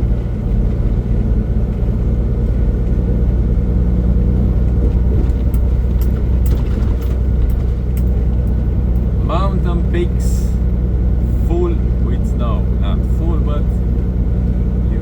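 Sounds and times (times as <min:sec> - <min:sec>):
road noise: 0:00.0 - 0:15.0
truck diesel engine droning: 0:00.0 - 0:15.0.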